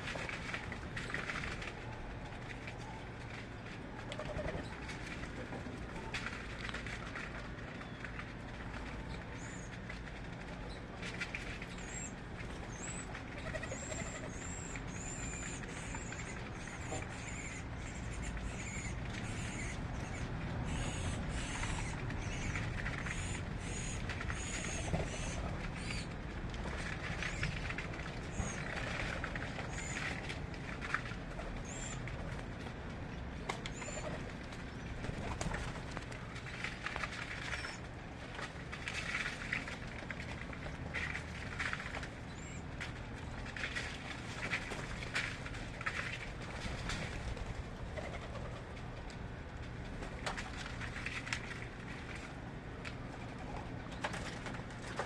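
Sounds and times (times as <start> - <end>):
steady low rumble: 0.0 - 55.0
small birds chirping: 11.7 - 26.1.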